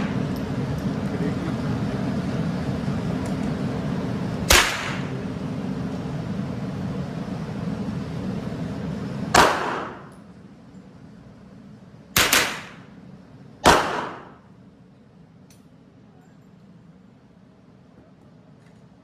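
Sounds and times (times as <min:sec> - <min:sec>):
steady low hum: 0:00.0 - 0:19.0
gunshots with ringing echo: 0:04.5 - 0:05.2, 0:09.4 - 0:10.1, 0:12.2 - 0:12.9, 0:13.6 - 0:14.4.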